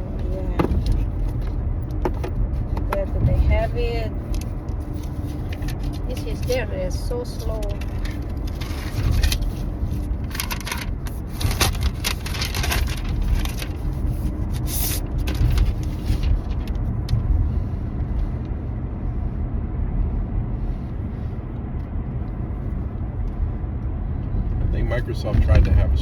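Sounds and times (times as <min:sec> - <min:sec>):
car engine and road rumble: 0:00.0 - 0:26.0
rustles and clicks: 0:00.1 - 0:17.3.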